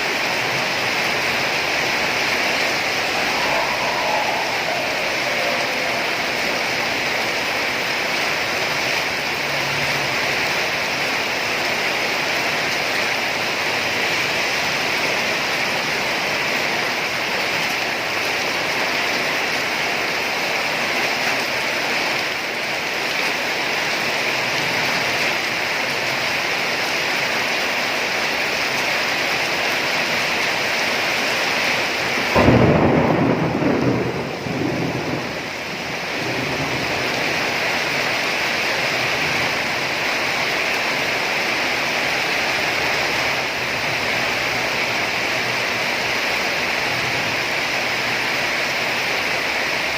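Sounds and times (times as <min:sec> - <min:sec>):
steady rain falling: 0:00.0 - 0:49.9
thunder clap rumbling: 0:00.3 - 0:09.2, 0:32.3 - 0:38.2.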